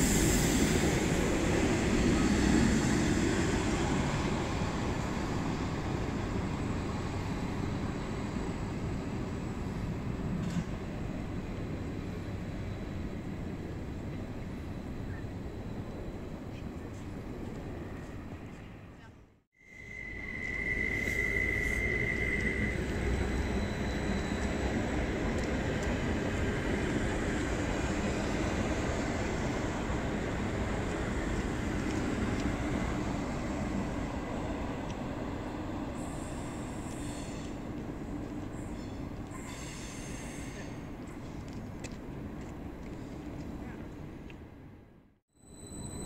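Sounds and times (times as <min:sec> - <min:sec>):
high thin squeal: 0:19.6 - 0:24.7, 0:38.6 - 0:40.8, 0:45.4 - 0:46.0
train wheels rumbling: 0:19.9 - 0:44.1.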